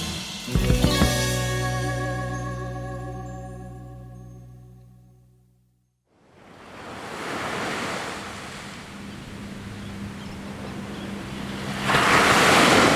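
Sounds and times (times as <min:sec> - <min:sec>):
music: 0:00.0 - 0:05.9
ocean surf: 0:06.3 - 0:12.9.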